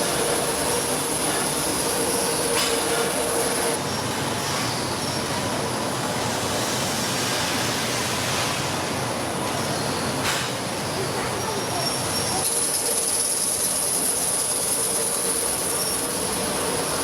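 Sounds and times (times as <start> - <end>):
metalworking machinery din: 0.0 - 3.8
high metallic whine: 0.0 - 4.1.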